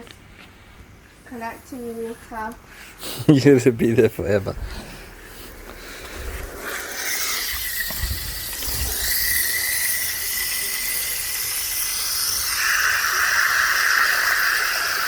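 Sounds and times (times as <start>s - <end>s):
water filling a container: 6.5s - 15.0s.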